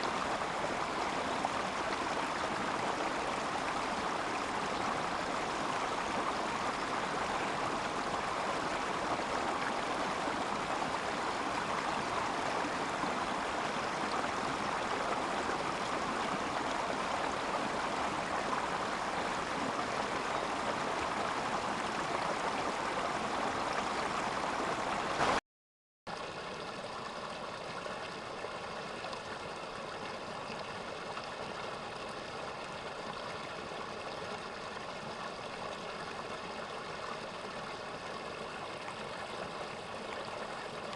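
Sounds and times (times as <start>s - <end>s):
stream water rushing over rocks: 0.0s - 25.4s.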